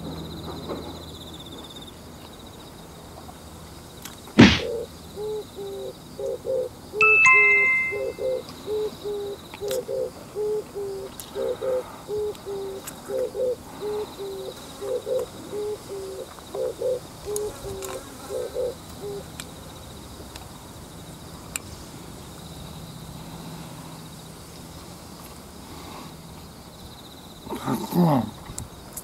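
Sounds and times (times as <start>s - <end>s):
bird hooting call: 7.7s - 17.5s, 18.3s - 19.2s
insect drone: 8.6s - 29.0s.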